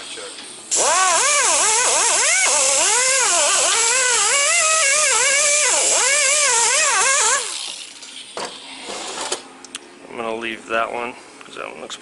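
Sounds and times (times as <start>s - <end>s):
buffing wheel grinding metal: 0.7s - 7.8s.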